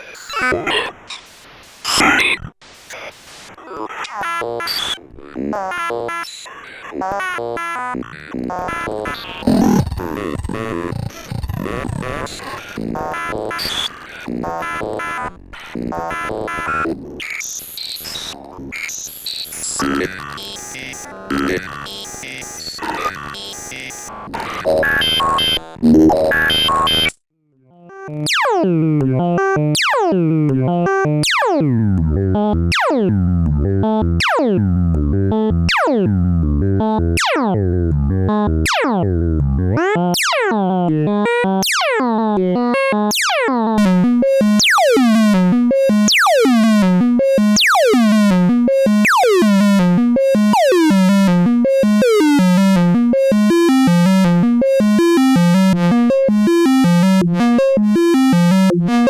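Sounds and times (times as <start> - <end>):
synthesizer plucked notes: 8.4 - 12.4, 27.7 - 59.0.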